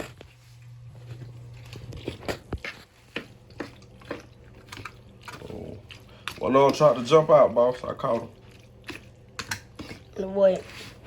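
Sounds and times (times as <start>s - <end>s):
soft wet squishing: 0.4s - 11.0s.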